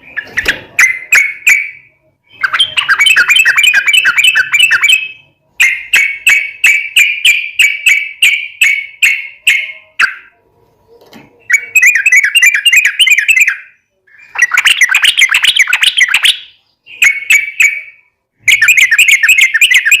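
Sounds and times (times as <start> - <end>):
bird singing chattering phrases: 0.0 - 10.4, 11.3 - 20.0.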